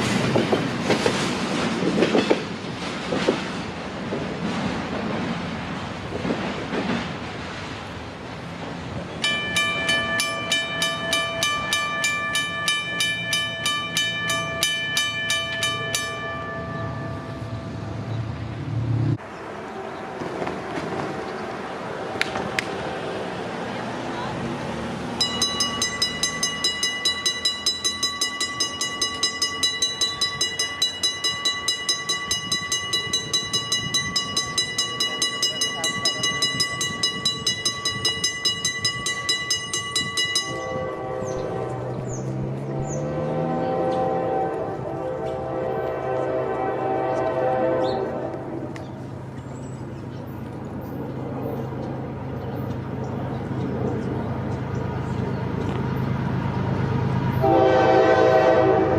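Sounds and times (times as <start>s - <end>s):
railroad crossing bell ringing: 9.2s - 18.6s, 25.1s - 47.8s, 57.4s - 58.9s.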